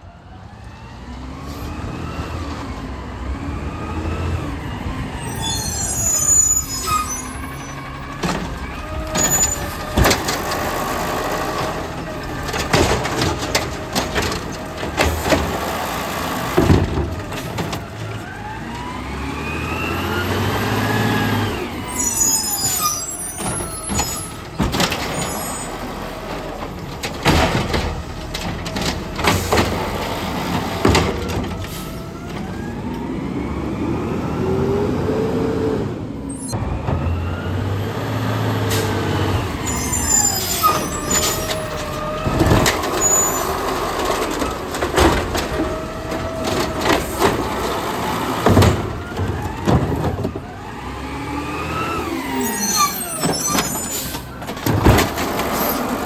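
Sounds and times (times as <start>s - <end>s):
garbage truck engine revving: 0.1s - 56.0s
cart knocking and clattering: 7.5s - 18.4s, 22.7s - 32.5s, 39.3s - 51.0s, 53.2s - 56.0s.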